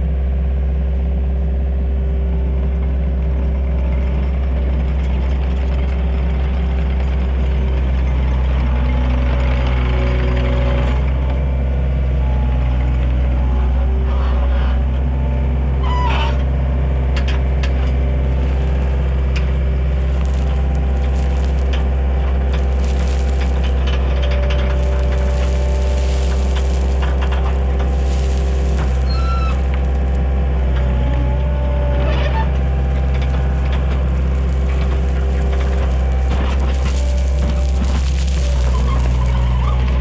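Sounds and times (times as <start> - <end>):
track loader engine running: 14.9 - 40.0.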